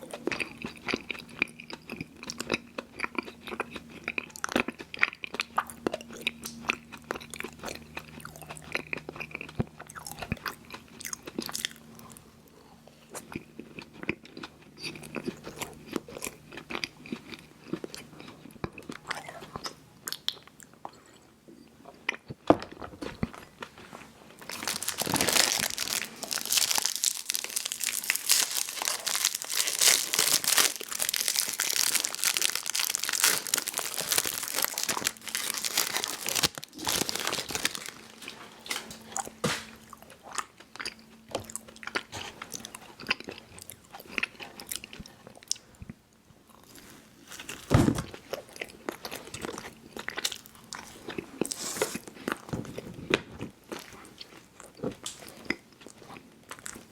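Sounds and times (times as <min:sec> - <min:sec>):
mouth chewing candy: 0:00.0 - 0:56.9
crunchy bite: 0:24.5 - 0:38.2.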